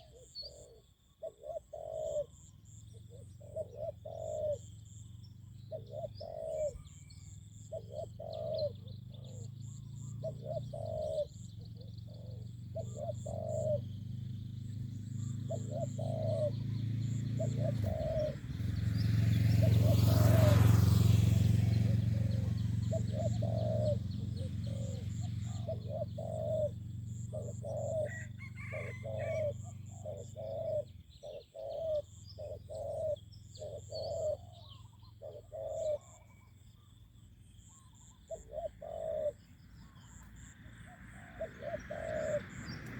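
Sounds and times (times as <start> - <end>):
doves cooing: 0.0 - 37.0, 37.6 - 42.9
small birds chirping: 0.0 - 42.9
engine drone: 2.5 - 31.2, 38.3 - 42.9.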